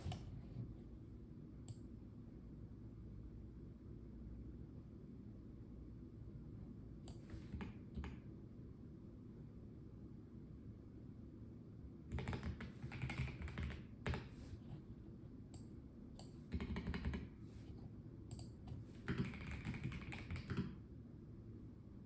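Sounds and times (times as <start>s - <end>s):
typing on mechanical keyboard: 12.1s - 14.3s, 16.5s - 17.3s, 18.7s - 20.8s.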